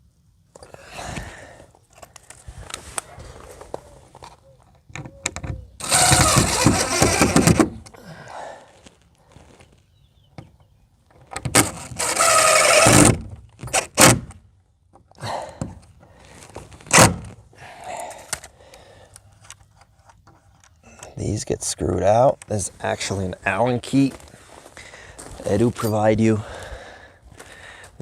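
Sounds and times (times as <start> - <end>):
power drill drilling: 5.8 - 7.7, 11.6 - 13.2.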